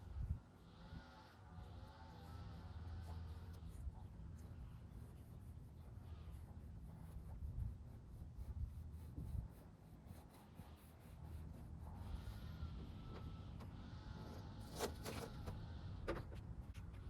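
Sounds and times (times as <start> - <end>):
rubber wheel rubbing on paint: 4.5 - 13.2.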